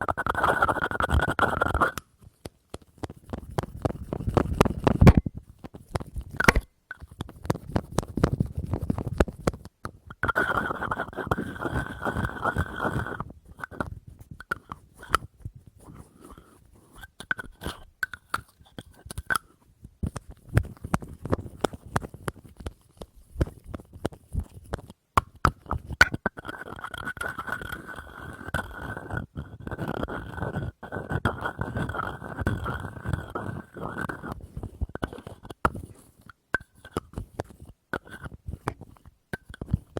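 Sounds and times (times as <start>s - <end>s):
tapping on small objects: 0.0s - 13.0s
scratching or rubbing: 0.0s - 39.9s.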